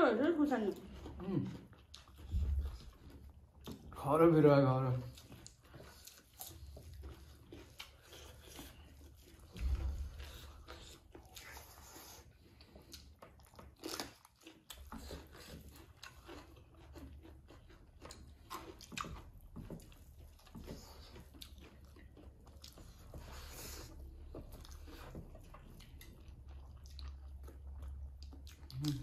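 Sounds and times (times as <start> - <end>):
people chewing and eating: 0.0 - 29.0
wet mouth clicks: 28.2 - 29.0.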